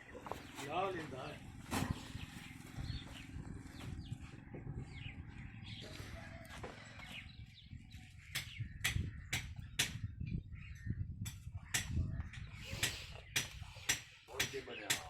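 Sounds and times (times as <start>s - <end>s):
small birds chirping: 0.0s - 15.0s
low steady rumble: 0.1s - 9.4s.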